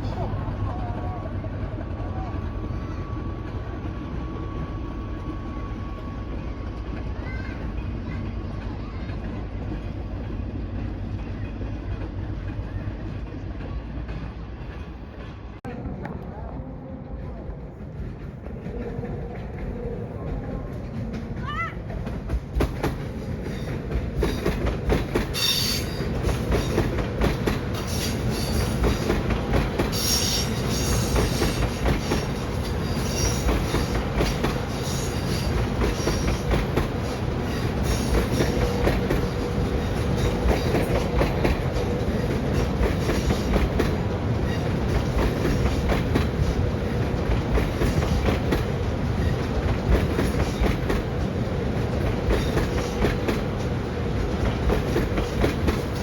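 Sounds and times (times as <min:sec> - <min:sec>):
train wheels clattering over rails: 0:17.2 - 0:56.0.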